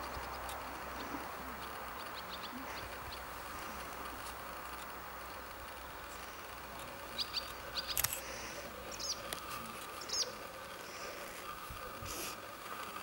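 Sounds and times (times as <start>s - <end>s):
small bird chirping: 0.0s - 3.3s, 7.1s - 8.1s, 8.9s - 9.3s, 9.9s - 10.5s.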